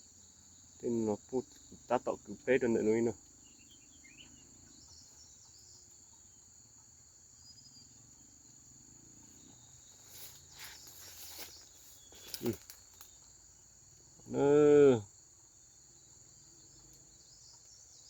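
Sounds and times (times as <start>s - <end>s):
insects chirring: 0.0s - 18.0s
faint rustles and knocks: 9.4s - 13.1s.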